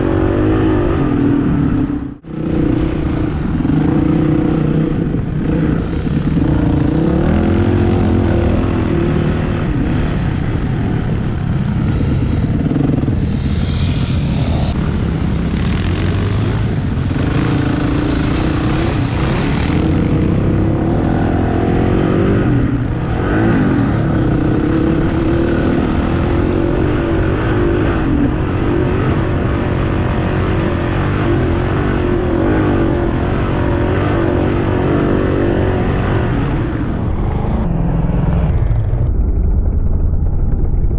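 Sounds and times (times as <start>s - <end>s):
motorcycle engine running: 0.0s - 40.9s
hissing rush: 11.0s - 20.5s.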